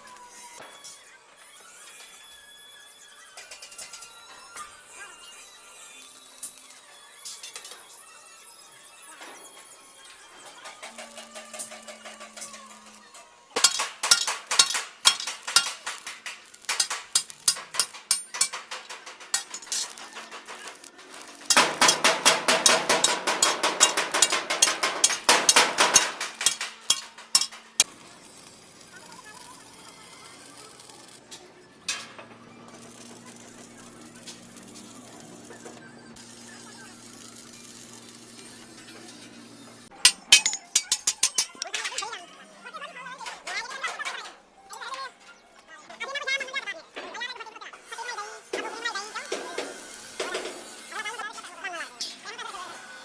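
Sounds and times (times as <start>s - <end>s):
metal struck with ringing blows: 13.6s - 20.3s, 21.5s - 27.6s, 40.1s - 42.1s.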